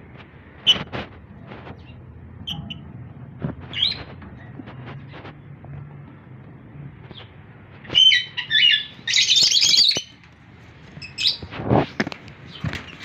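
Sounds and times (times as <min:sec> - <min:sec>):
lovebirds calling and chattering: 0:01.6 - 0:05.4, 0:07.0 - 0:11.5, 0:12.1 - 0:13.0.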